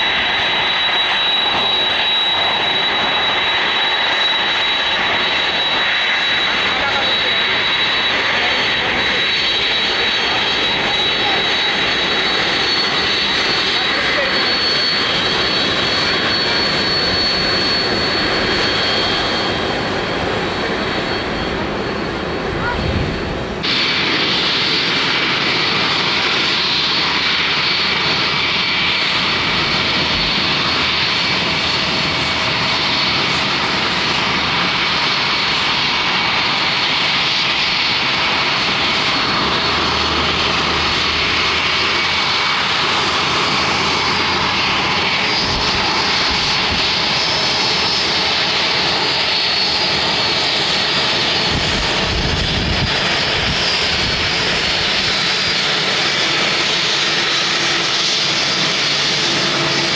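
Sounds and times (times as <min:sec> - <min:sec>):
jet engines running: 0:00.0 - 0:59.9
high even whine: 0:10.2 - 0:32.8, 0:37.5 - 0:50.5.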